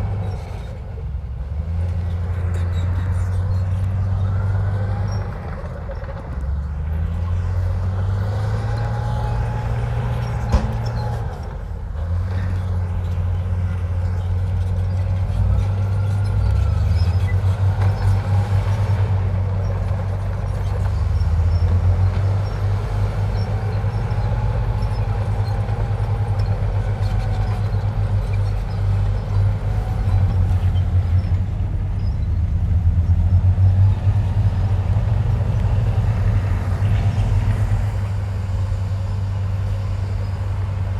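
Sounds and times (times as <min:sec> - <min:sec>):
bulldozer diesel engine: 0:00.0 - 0:40.9.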